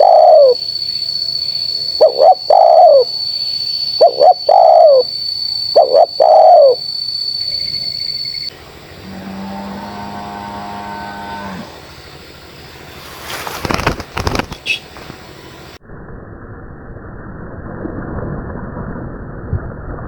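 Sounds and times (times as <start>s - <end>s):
dove cooing: 0.0s - 0.6s, 2.0s - 3.1s, 4.0s - 5.1s, 5.8s - 6.8s
loud rustling: 12.9s - 15.3s.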